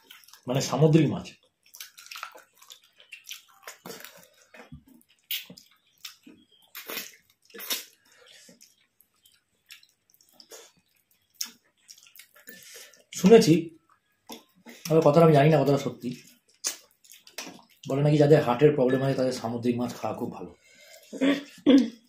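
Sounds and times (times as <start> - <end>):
chewing: 0.0 - 0.5, 1.3 - 13.2, 13.8 - 14.9, 16.1 - 18.0
wet squelches of eating by hand: 0.0 - 0.6, 1.3 - 13.2, 16.1 - 18.0.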